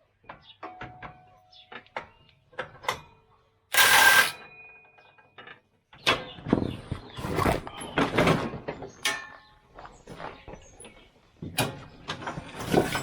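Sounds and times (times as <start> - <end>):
metal tools clanking: 3.8 - 4.4, 12.6 - 13.0.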